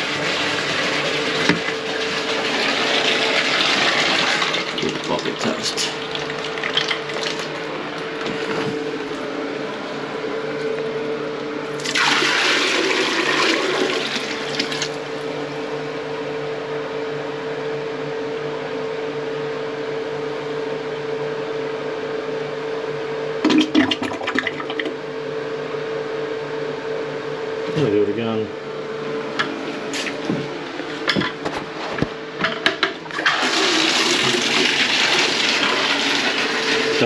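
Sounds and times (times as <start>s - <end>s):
water rushing down toilet drain: 0.0s - 7.6s, 11.8s - 15.0s, 23.4s - 25.0s, 33.1s - 37.0s
exhaust fan humming: 0.0s - 37.0s.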